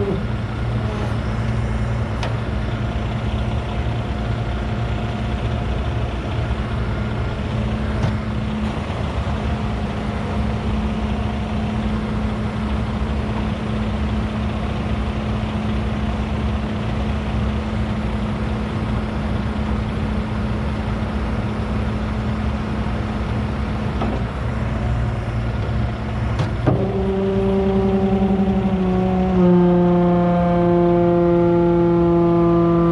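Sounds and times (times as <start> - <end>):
diesel truck engine idling: 0.0 - 32.9
high pitched drone: 26.8 - 32.9.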